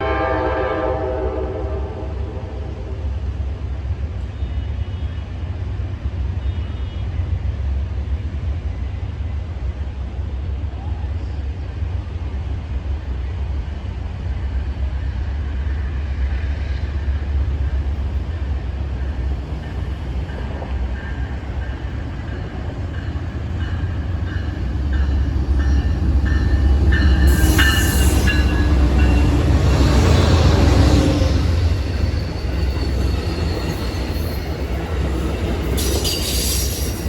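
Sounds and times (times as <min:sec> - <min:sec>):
train rumbling past: 0:00.0 - 0:37.0
train wheel squeal: 0:04.2 - 0:07.4, 0:18.2 - 0:37.0.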